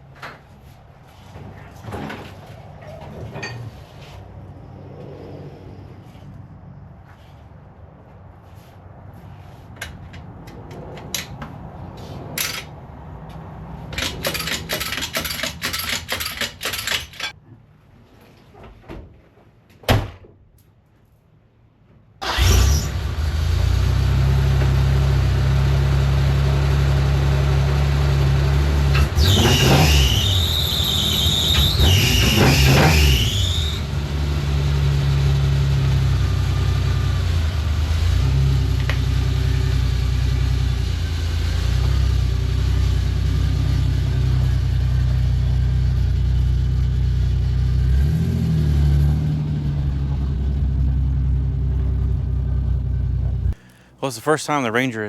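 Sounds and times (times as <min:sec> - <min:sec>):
truck engine starting and running: 0:09.8 - 0:17.4, 0:22.2 - 0:55.0
clicks and knocks: 0:13.9 - 0:17.3
high squeal: 0:29.2 - 0:33.9.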